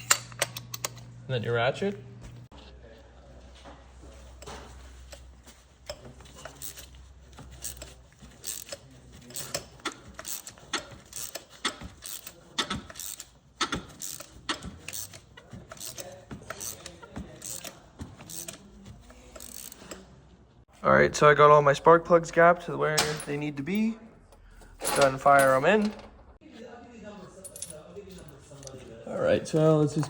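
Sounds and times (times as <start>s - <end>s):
metal tools clinking: 4.2s - 20.0s, 24.7s - 26.2s, 27.4s - 30.0s
hand ratchet clicking: 5.9s - 18.6s, 19.2s - 20.0s.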